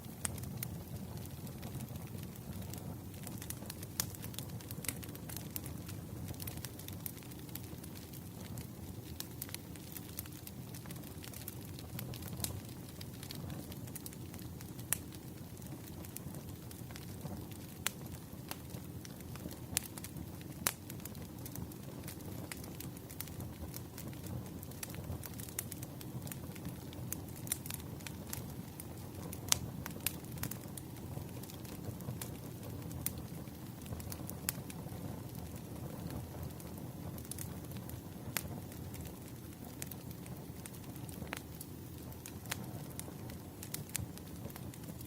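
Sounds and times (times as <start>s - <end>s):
burning wood rumble: 0.0s - 45.0s
fireplace crackling: 0.0s - 45.0s
wood fire popping: 0.0s - 45.0s.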